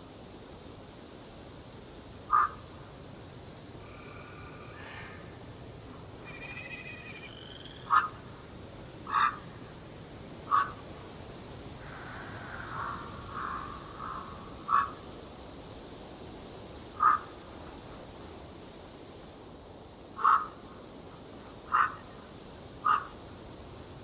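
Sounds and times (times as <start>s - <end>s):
steady background hiss: 0.0s - 24.0s
loud short bird call: 6.2s - 8.1s
whistled bird song: 6.3s - 7.9s.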